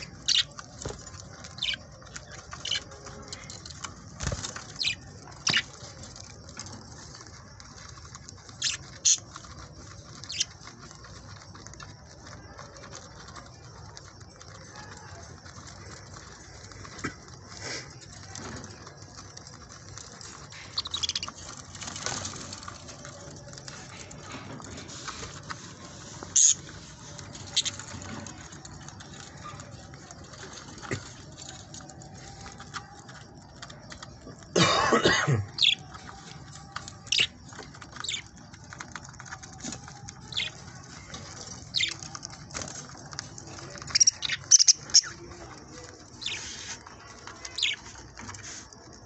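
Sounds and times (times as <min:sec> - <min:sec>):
budgerigars chirping: 0:00.0 - 0:00.6, 0:01.5 - 0:03.4, 0:04.6 - 0:05.7, 0:08.6 - 0:09.2, 0:10.2 - 0:10.5, 0:20.6 - 0:21.4, 0:26.3 - 0:26.6, 0:35.6 - 0:35.9, 0:41.7 - 0:42.0, 0:43.9 - 0:45.2, 0:47.5 - 0:47.8.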